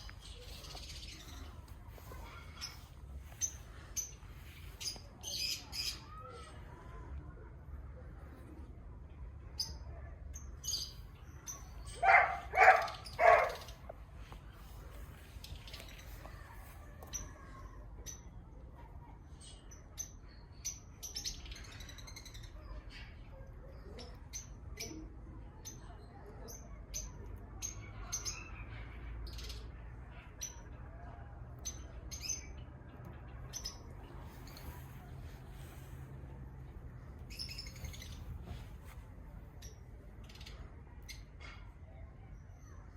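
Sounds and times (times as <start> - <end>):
pet animal calls: 11.9 - 13.8
high-pitched bird chirps: 37.3 - 39.0.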